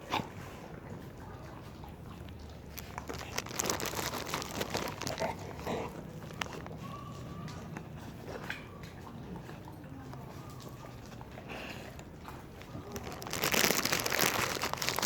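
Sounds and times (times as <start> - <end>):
dogs crunching hard snacks: 2.5 - 7.7, 10.6 - 15.0.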